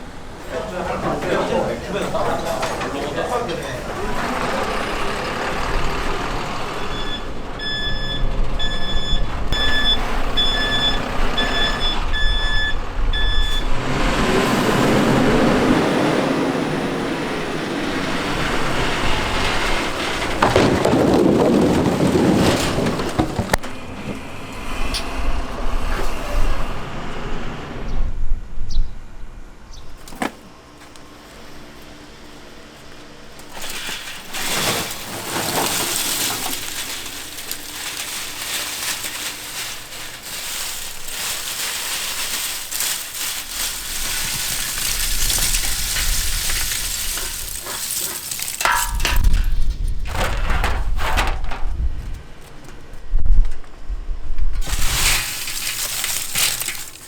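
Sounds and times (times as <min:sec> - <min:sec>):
engine rumble: 0:00.0 - 0:57.0
vehicle reversing alarm beeping: 0:03.5 - 0:13.9.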